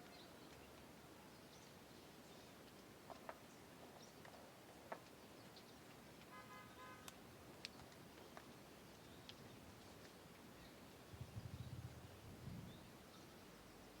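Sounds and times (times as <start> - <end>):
faint background hiss: 0.0 - 14.0
faint clicks: 7.0 - 8.6.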